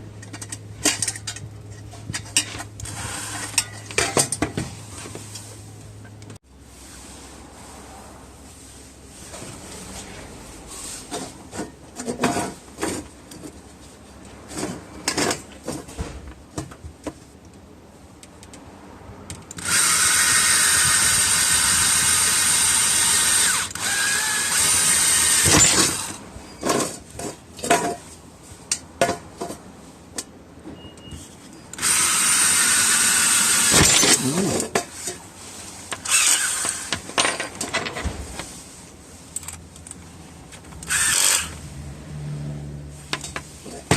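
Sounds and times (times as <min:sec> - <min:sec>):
knocks and clatter of parts: 0:00.1 - 0:05.4, 0:11.1 - 0:17.3, 0:24.5 - 0:31.9, 0:33.5 - 0:35.2, 0:35.9 - 0:38.6, 0:43.1 - 0:43.9
power drill running: 0:19.6 - 0:26.2, 0:31.8 - 0:34.3, 0:40.9 - 0:41.6.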